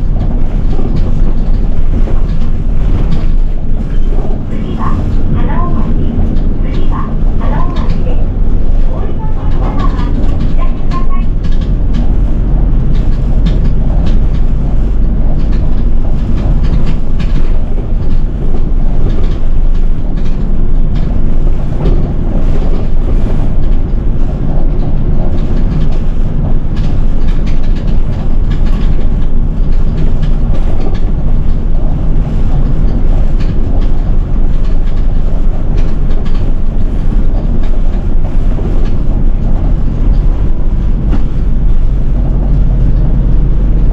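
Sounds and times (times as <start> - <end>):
bus engine and road rumble: 0.0 - 43.9
clicks and rattles: 0.1 - 14.6.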